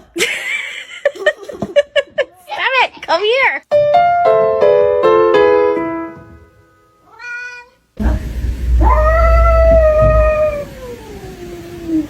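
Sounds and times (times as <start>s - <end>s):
piano note: 3.7s - 7.0s, 8.0s - 10.5s
cat meowing: 7.0s - 7.8s
low rumble: 8.0s - 10.7s.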